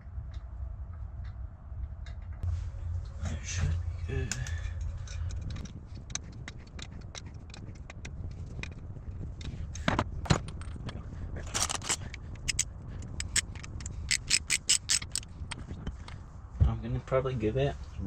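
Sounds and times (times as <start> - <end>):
steady low hum: 0.0 - 18.0
metal tools clinking and scraping: 9.4 - 16.1.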